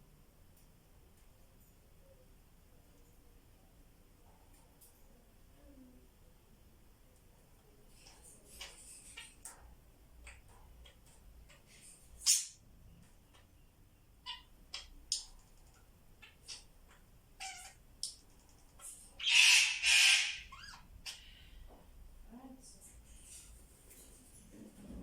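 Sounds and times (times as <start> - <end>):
parrots chirping and clicking: 7.9 - 21.4
parrot harsh squawks: 17.4 - 17.8, 19.2 - 21.4
parrot sharp call: 19.2 - 21.3.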